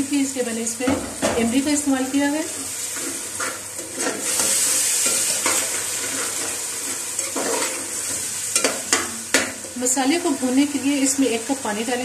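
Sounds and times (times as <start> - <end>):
food sizzling in hot oil: 0.0 - 12.0
metal spoon scraping a pot: 2.9 - 9.8.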